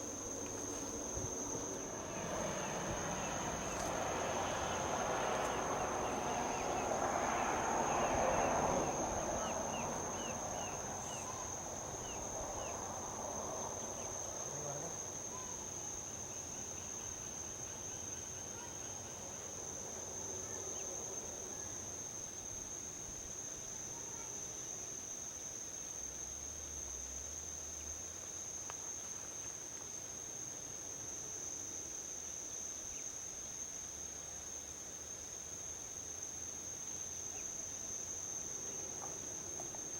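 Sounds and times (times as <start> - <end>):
vehicle passing on highway: 0.0 - 14.5
insects droning: 0.0 - 39.9.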